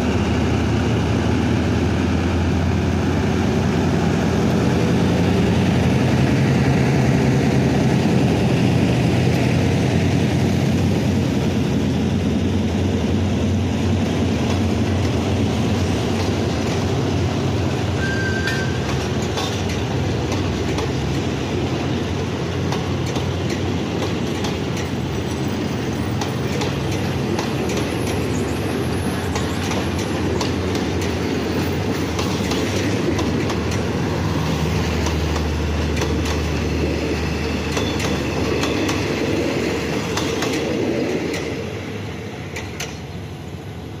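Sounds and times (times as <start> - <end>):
train coaches rumbling past: 0.0 - 44.0
wheels clicking over rail joints: 18.3 - 25.2, 26.0 - 41.6, 42.5 - 43.2.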